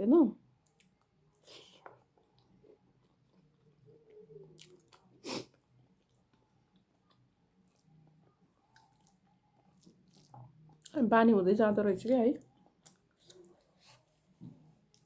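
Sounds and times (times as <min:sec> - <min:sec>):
person chewing: 0:00.6 - 0:10.9, 0:12.4 - 0:14.1.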